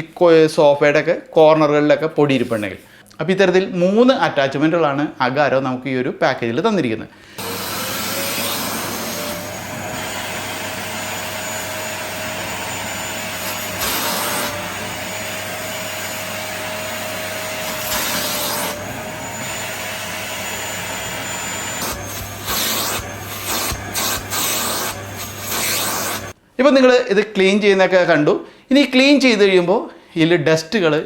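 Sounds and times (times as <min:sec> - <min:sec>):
vacuum cleaner motor whine: 0:07.4 - 0:26.4.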